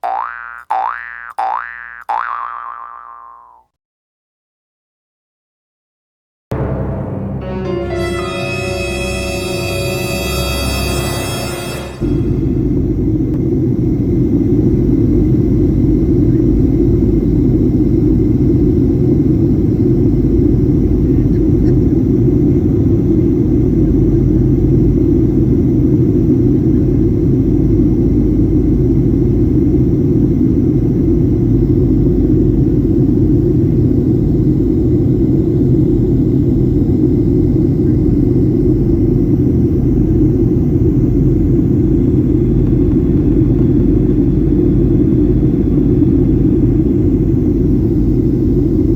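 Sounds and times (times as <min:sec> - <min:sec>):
aircraft cabin engine rumble: 0:12.4 - 0:48.9.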